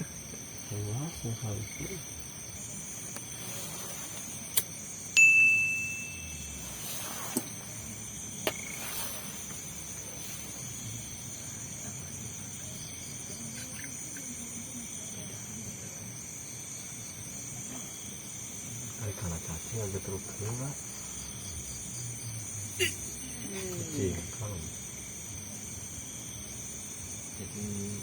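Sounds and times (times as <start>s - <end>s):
crickets chirping: 0.0s - 28.0s
short metallic ding: 5.2s - 6.5s.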